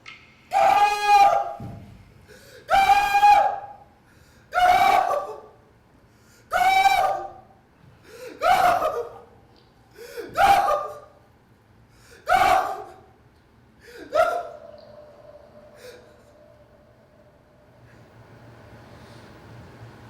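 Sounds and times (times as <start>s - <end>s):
person gasping cries: 13.8s - 17.0s.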